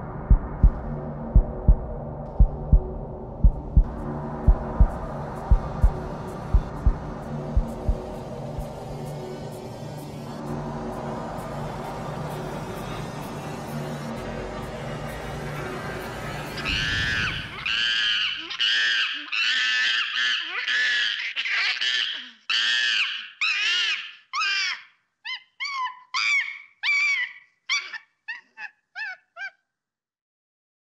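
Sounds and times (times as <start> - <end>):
screeching monkey-like calls: 16.0 - 29.6.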